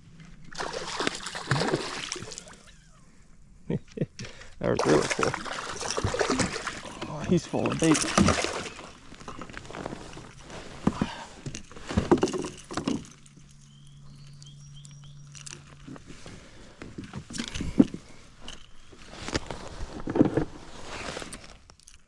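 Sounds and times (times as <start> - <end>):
knocks and rustles in kayak: 4.9 - 14.1, 15.4 - 21.7
faint high chirps: 13.6 - 15.6.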